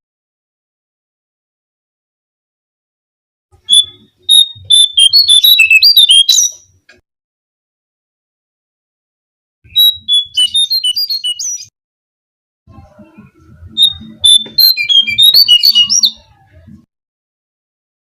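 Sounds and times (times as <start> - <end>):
bird whistled song: 3.6 - 6.7, 9.7 - 11.7, 13.7 - 16.4.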